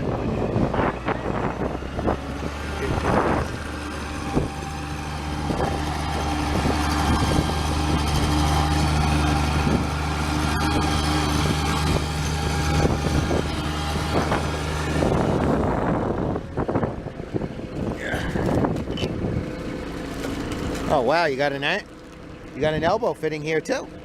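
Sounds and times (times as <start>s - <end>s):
machine engine running steadily: 0.0s - 24.0s.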